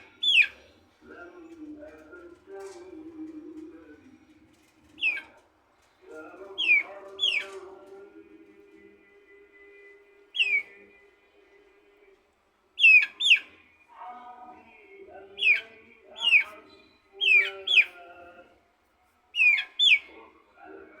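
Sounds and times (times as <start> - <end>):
faint lower bird calls: 0.0 - 1.0, 3.9 - 5.4, 6.6 - 7.6, 10.0 - 11.1, 12.8 - 13.8, 15.4 - 18.1, 19.3 - 20.3.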